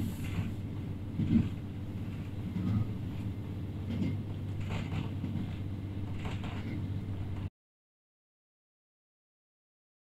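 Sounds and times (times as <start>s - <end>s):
railcar cabin drone: 0.0s - 7.5s.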